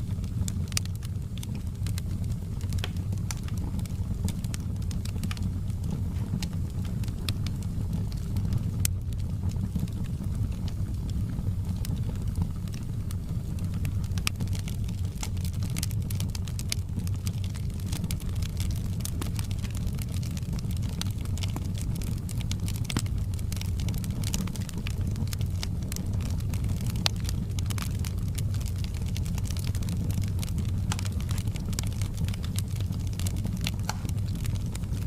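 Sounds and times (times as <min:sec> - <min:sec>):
fire roaring: 0:00.0 - 0:35.0
wood popping and snapping: 0:02.6 - 0:03.9, 0:22.4 - 0:25.7, 0:26.5 - 0:35.0.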